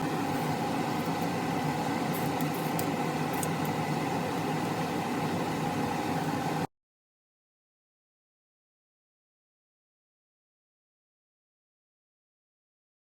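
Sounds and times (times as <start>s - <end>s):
steady mechanical hum: 0.0s - 6.7s.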